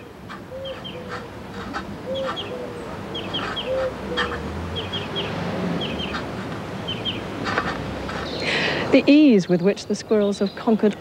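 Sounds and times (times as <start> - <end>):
bird calling with chirps: 0.0 - 7.3, 8.2 - 8.8.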